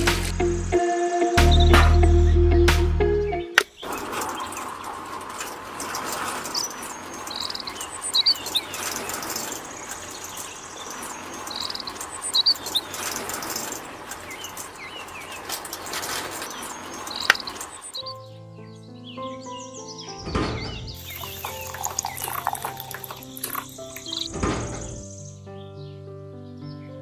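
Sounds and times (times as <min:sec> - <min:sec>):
birds chirping: 0:01.4 - 0:02.6, 0:03.2 - 0:27.0
outdoor background hiss: 0:03.6 - 0:18.4, 0:21.0 - 0:25.4.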